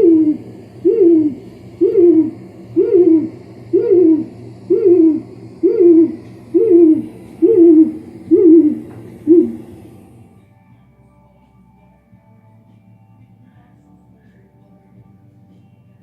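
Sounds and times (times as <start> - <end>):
bird scarer hooting call: 0.0 - 10.0.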